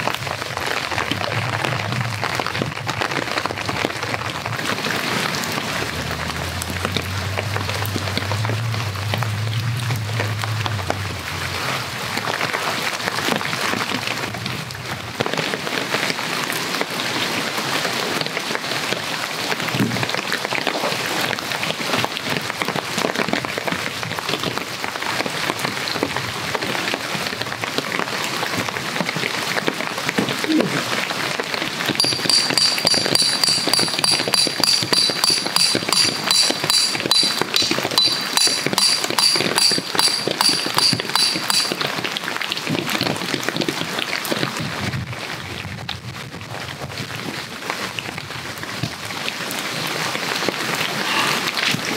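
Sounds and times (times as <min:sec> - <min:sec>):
rain falling on leaves: 0:00.0 - 0:31.9, 0:41.9 - 0:51.9
rhythmic high-pitched ringing: 0:32.0 - 0:41.8.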